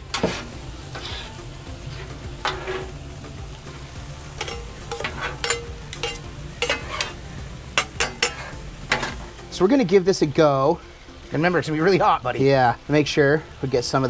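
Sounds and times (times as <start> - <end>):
metal utensils scraping a griddle: 0.0 - 9.3
food sizzling on a griddle: 0.0 - 14.0.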